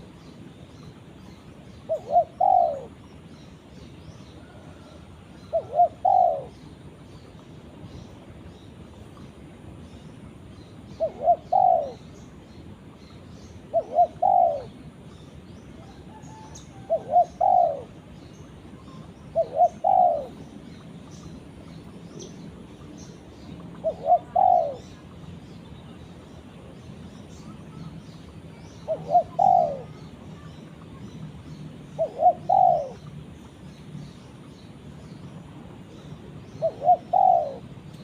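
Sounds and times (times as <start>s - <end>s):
small birds chirping: 0.0s - 38.0s
dove cooing: 1.9s - 3.0s, 4.4s - 6.6s, 11.0s - 12.1s, 13.7s - 14.8s, 15.9s - 18.0s, 19.0s - 20.4s, 23.7s - 25.0s, 28.9s - 30.1s, 32.0s - 33.1s, 36.6s - 37.7s.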